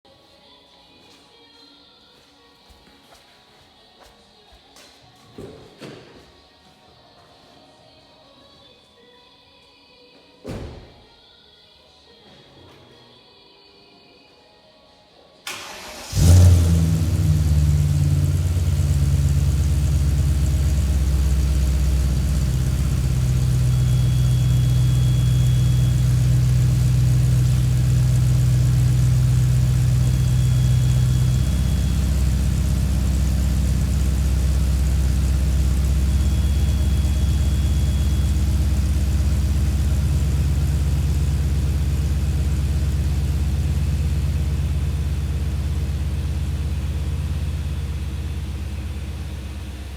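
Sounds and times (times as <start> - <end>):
car engine idling: 15.6 - 49.9.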